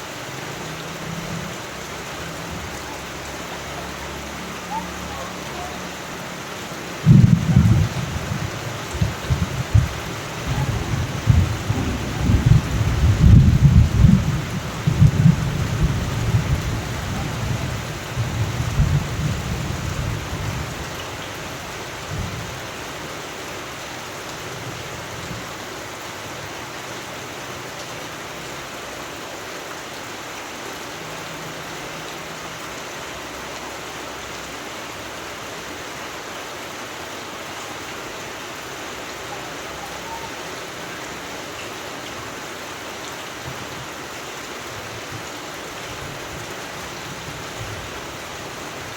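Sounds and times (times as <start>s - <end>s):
steady downpour of rain: 0.0s - 48.9s
rolling thunder: 7.0s - 20.8s.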